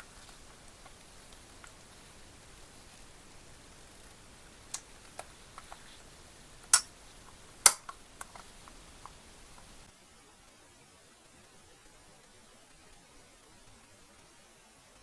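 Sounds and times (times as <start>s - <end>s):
hard objects clicking and tapping: 6.6s - 9.8s.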